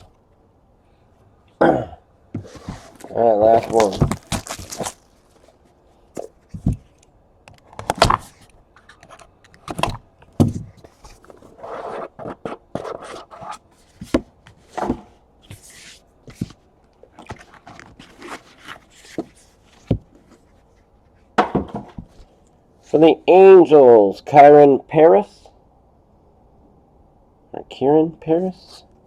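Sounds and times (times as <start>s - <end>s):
cards sliding scrape: 2.4s - 4.9s, 10.7s - 16.6s, 17.2s - 20.4s.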